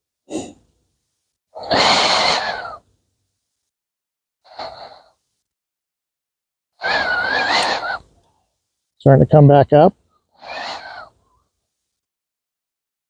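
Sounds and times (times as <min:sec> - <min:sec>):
heavy breathing through a respirator: 0:00.2 - 0:00.7, 0:04.4 - 0:05.2.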